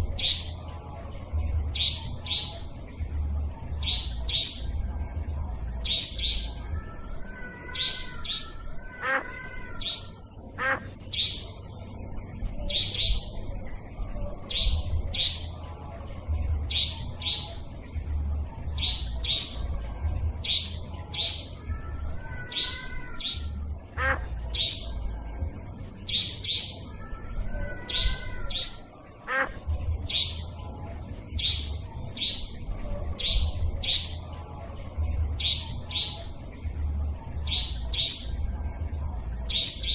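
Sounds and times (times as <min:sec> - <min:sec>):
nightjar calls: 0:00.0 - 0:00.7, 0:01.7 - 0:02.8, 0:03.8 - 0:04.8, 0:05.8 - 0:11.8, 0:12.6 - 0:13.5, 0:14.4 - 0:15.6, 0:16.7 - 0:17.7, 0:18.8 - 0:19.8, 0:20.4 - 0:25.1, 0:26.0 - 0:30.6, 0:31.4 - 0:34.4, 0:35.4 - 0:36.4, 0:37.4 - 0:38.5, 0:39.5 - 0:39.9.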